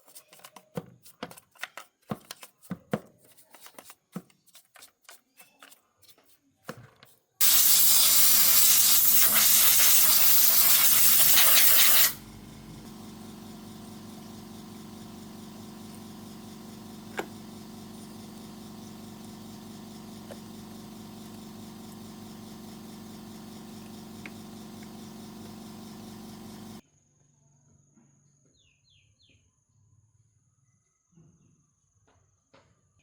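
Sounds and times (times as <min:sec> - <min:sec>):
mechanical hum: 0:08.0 - 0:26.8.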